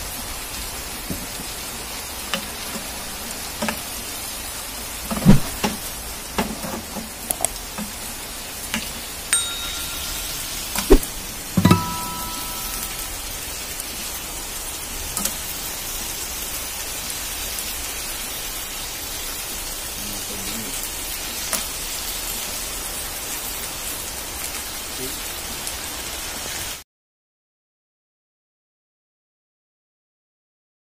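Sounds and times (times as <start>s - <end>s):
food sizzling in a pan: 0.0s - 26.8s
short ring: 9.4s - 13.3s.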